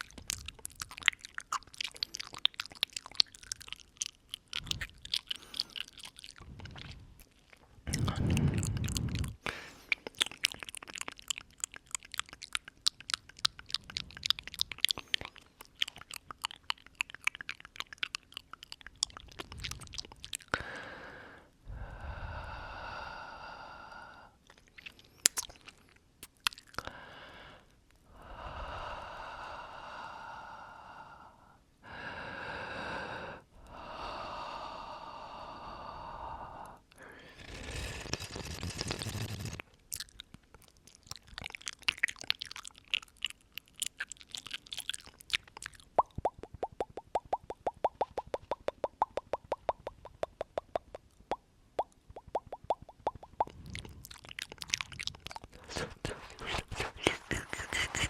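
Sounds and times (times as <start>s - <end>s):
wet mouth clicks and smacks: 0.0s - 20.6s, 24.4s - 26.9s, 37.4s - 58.0s.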